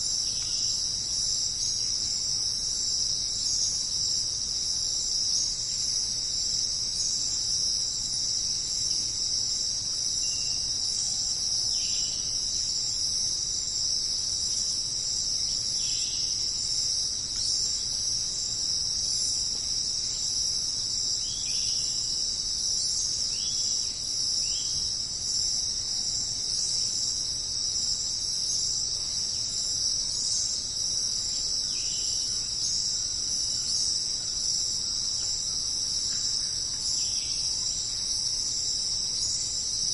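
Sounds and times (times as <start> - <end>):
insect chorus shrill hum: 0.0 - 39.9.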